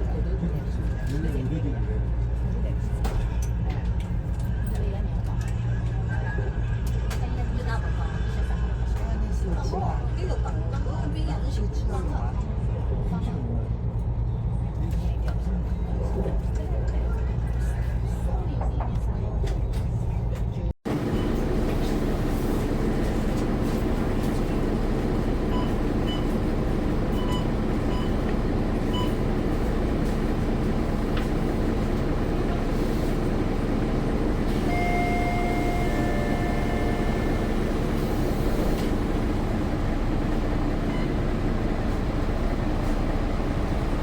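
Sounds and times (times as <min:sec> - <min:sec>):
bus engine and road rumble: 0:00.0 - 0:44.0
short electronic beeps: 0:34.6 - 0:37.2.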